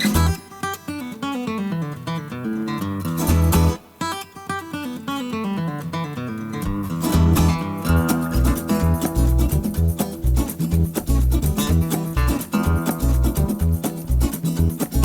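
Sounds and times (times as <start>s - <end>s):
acoustic guitar: 0.0s - 15.0s
bass notes: 6.7s - 15.0s.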